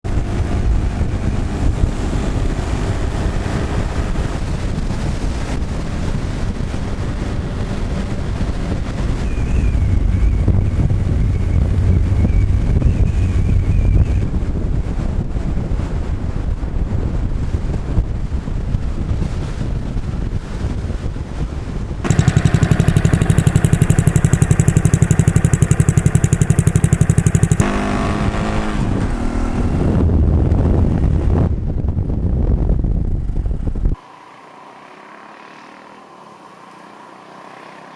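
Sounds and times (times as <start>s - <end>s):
motorcycle engine pulsing: 22.0s - 28.8s
faint high steady tone: 22.1s - 27.6s.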